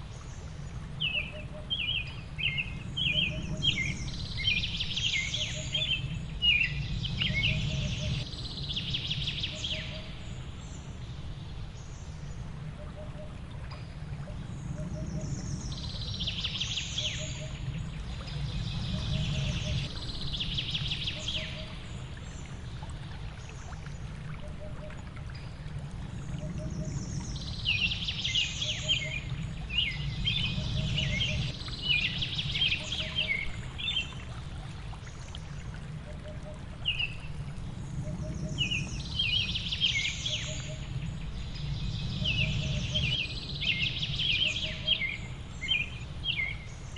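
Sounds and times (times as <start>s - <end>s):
rushing water: 0.0s - 46.9s
songbirds chirping: 0.0s - 46.9s.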